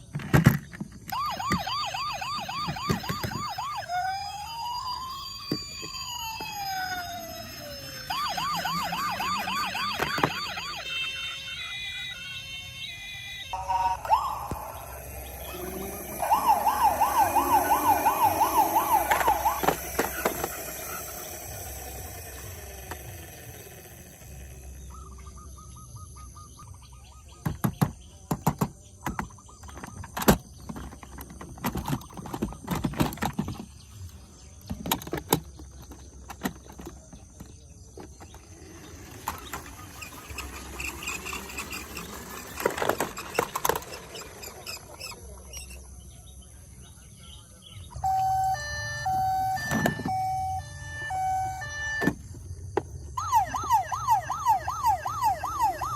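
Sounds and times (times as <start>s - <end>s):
toy siren warbling: 1.1s - 26.6s, 34.8s - 45.9s, 47.9s - 52.3s, 53.0s - 55.9s.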